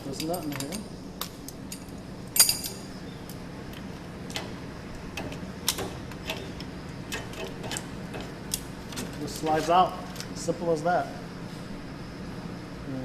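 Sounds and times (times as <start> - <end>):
low steady hum: 0.0 - 13.0
metal clicks of hand tools: 0.1 - 2.8.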